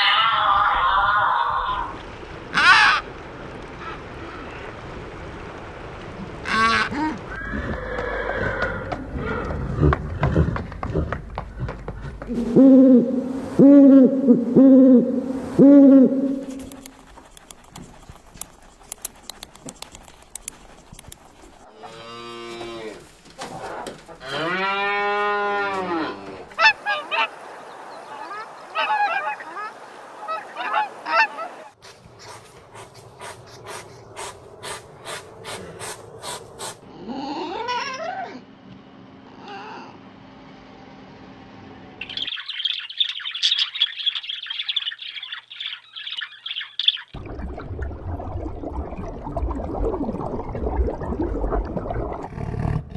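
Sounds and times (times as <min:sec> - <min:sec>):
animal call rising and falling: 0:00.0 - 0:03.0, 0:06.4 - 0:10.6, 0:12.3 - 0:16.9
regular clicks: 0:16.4 - 0:21.6
parakeets chattering: 0:42.0 - 0:47.2.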